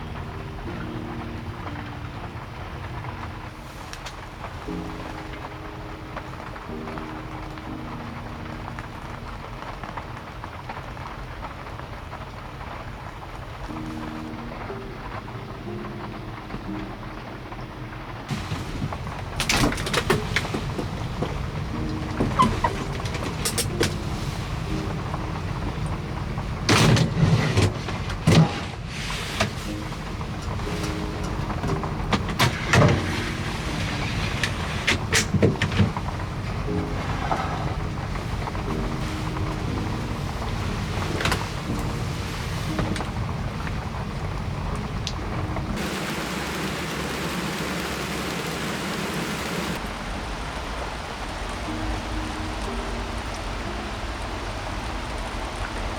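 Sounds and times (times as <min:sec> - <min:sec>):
heavy rain falling: 0:00.0 - 0:55.9
vehicle rumble: 0:18.2 - 0:51.6.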